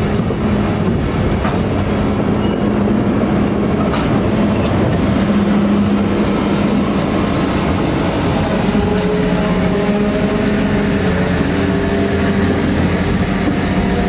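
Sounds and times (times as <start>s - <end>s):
freight train wheels rumbling: 0.0s - 14.0s
wheel squeals: 1.8s - 2.9s.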